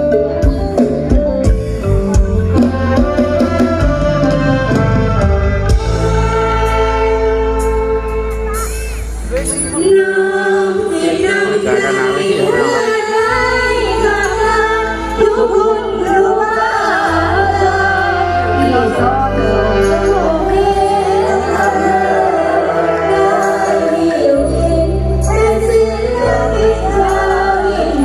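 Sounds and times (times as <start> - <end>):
live band accompaniment: 0.0 - 28.0
woman singing: 9.8 - 28.0.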